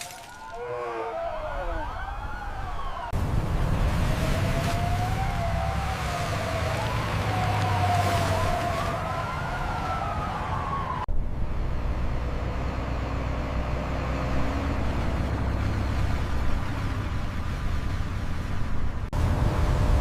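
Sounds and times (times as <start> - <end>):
emergency siren wailing: 0.0 - 3.2, 3.8 - 11.1.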